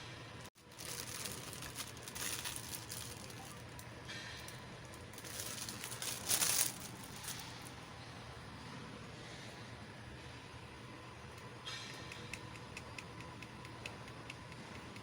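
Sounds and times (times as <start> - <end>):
packaging crinkling: 0.6 - 7.7.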